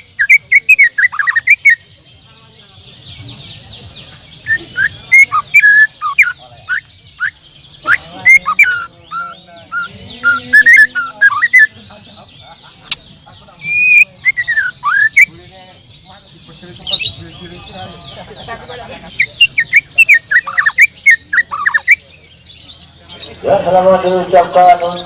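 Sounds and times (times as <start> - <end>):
bird singing whistled phrases: 0.0 - 1.8, 4.4 - 11.7, 13.6 - 15.3, 19.3 - 22.0
songbirds chirping chorus: 0.0 - 25.0.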